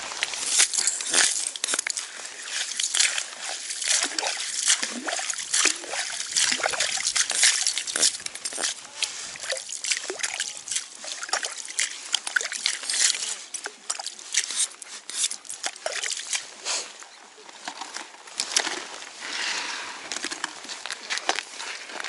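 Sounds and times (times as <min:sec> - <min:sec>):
water slopping and trickling: 0:00.0 - 0:16.6
ice clicks and scrapes: 0:00.0 - 0:16.9.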